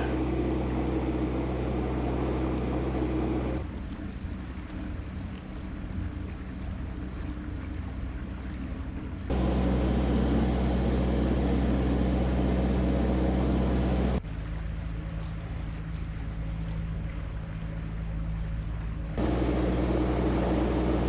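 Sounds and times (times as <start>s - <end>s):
boat diesel engine running: 0.0s - 3.6s, 9.3s - 14.2s, 19.2s - 21.0s.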